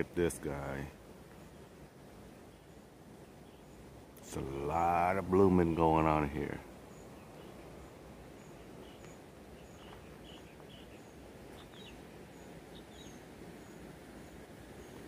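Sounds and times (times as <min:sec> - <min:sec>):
low steady outdoor hiss: 0:00.0 - 0:15.0
small bird chirps: 0:06.9 - 0:15.0.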